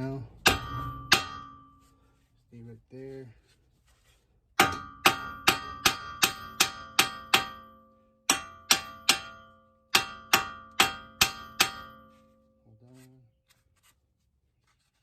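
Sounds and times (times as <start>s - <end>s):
hammer striking metal: 0.4s - 1.8s, 4.6s - 12.3s.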